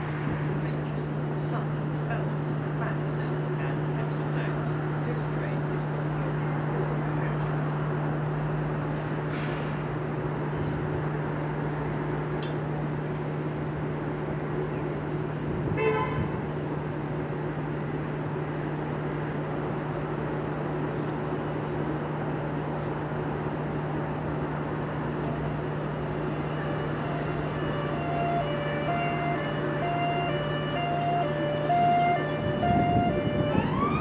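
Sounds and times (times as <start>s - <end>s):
train horn toot: 15.8s - 16.4s
electric train humming: 16.4s - 34.0s.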